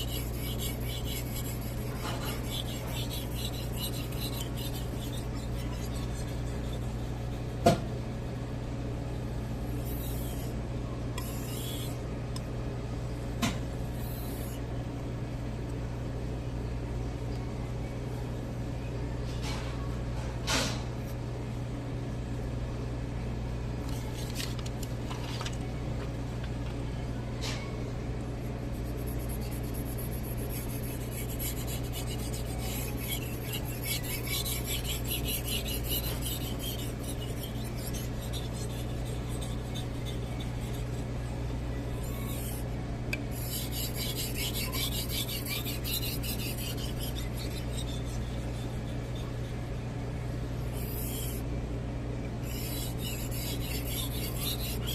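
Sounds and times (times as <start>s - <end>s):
knife scraping on whetstone: 0.0s - 7.8s, 9.7s - 10.5s, 11.2s - 12.0s, 14.0s - 14.6s, 28.7s - 41.2s, 42.0s - 49.7s, 50.7s - 51.4s, 52.4s - 54.9s
low steady hum: 0.0s - 54.9s.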